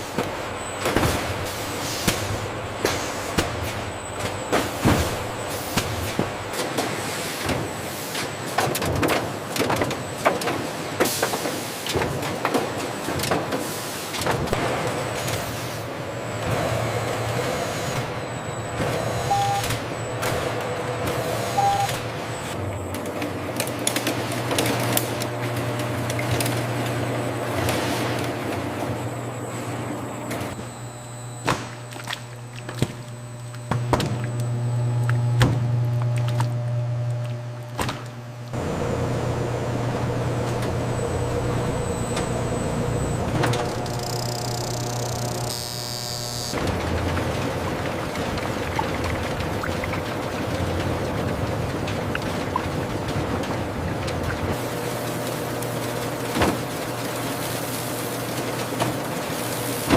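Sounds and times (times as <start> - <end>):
machinery clanks and clicks: 0.0 - 30.7, 40.0 - 45.7, 46.5 - 59.9
factory machinery running: 0.0 - 59.9.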